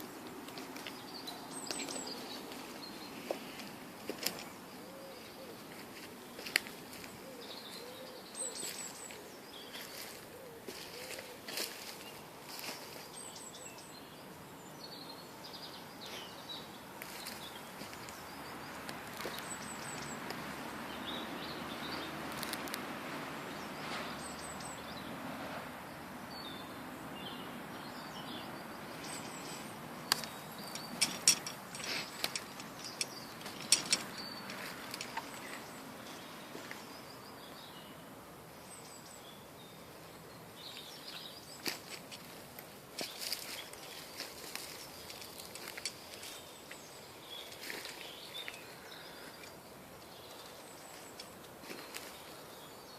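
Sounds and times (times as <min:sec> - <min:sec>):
songbirds chirping and singing: 0:00.0 - 0:52.9
outdoor hiss: 0:11.5 - 0:52.9
sharp clicks or knocks: 0:30.1 - 0:34.2.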